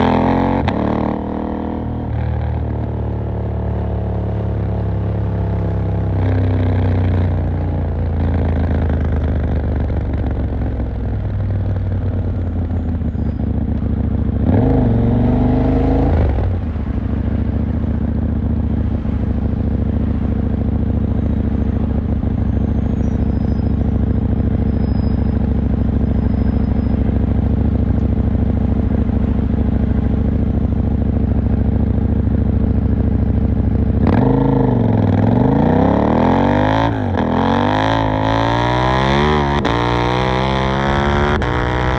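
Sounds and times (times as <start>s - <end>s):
motorcycle engine idling: 7.3s - 14.6s, 16.4s - 34.0s.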